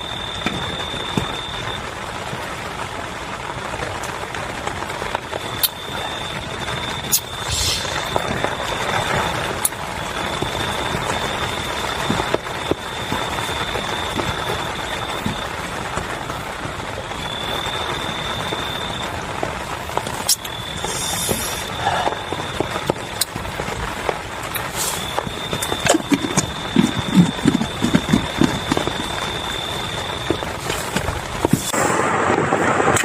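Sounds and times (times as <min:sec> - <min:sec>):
heavy rain falling: 0:00.0 - 0:33.0
thin high steady tone: 0:07.0 - 0:09.4, 0:24.6 - 0:31.0.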